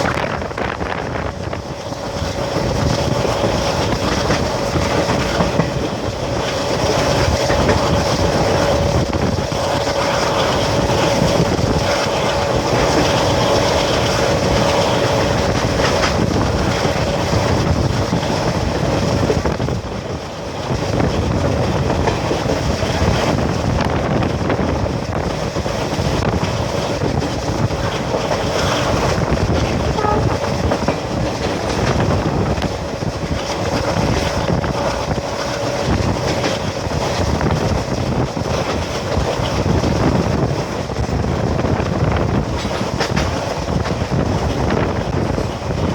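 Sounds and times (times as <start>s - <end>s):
diesel locomotive engine chugging: 0.0s - 45.9s.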